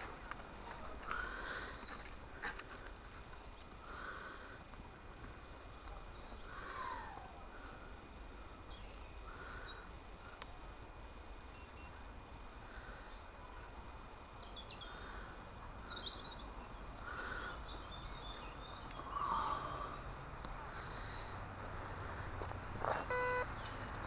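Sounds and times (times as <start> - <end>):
outdoor background noise: 0.0 - 24.0
faint bird chirps: 11.5 - 12.1, 15.8 - 20.0.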